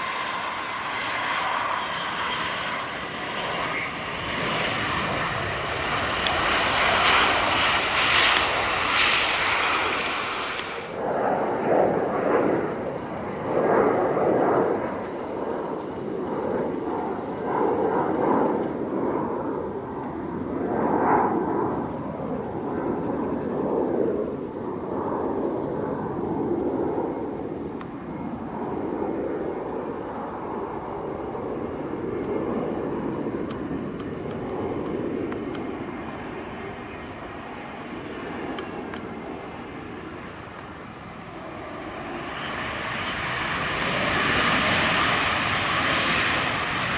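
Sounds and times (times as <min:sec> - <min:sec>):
jet engines rumbling: 0:00.0 - 0:46.9
faint clicks: 0:27.7 - 0:28.0, 0:31.7 - 0:36.4.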